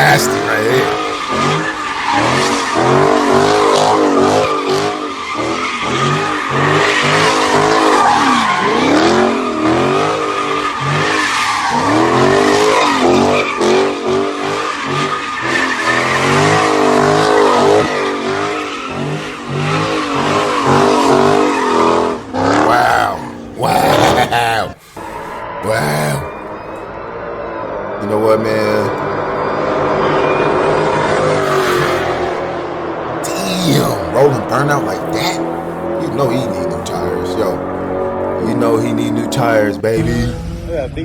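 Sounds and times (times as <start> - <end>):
car engine revving: 0.0 - 24.3
tires squealing: 0.0 - 26.8, 28.0 - 40.0.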